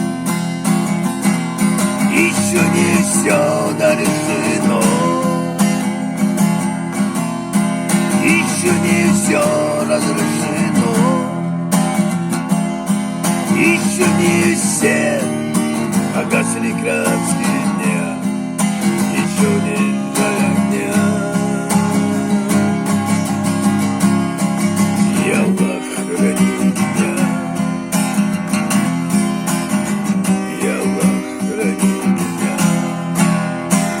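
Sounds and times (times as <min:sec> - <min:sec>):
acoustic guitar strumming: 0:00.0 - 0:34.0.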